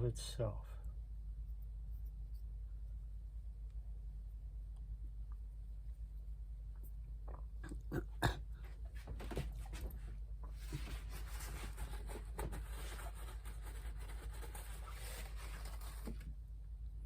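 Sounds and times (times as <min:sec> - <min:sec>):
rustling scrape: 0:09.0 - 0:16.3.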